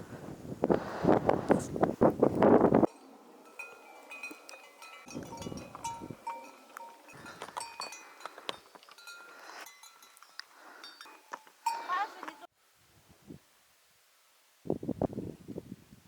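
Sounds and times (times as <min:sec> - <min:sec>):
wind rushing on microphone: 0:00.0 - 0:02.9, 0:05.1 - 0:06.2, 0:14.6 - 0:16.0
livestock bells clinking: 0:02.9 - 0:12.5.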